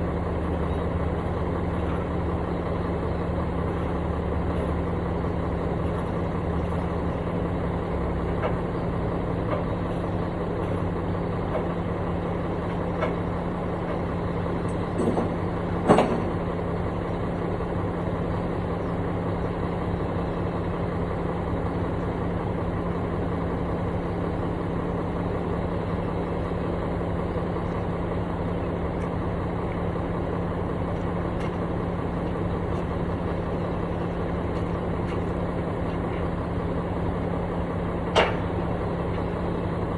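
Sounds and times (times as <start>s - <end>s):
diesel engine idling: 0.0s - 39.9s
sharp clunk: 14.7s - 16.4s, 38.1s - 38.6s.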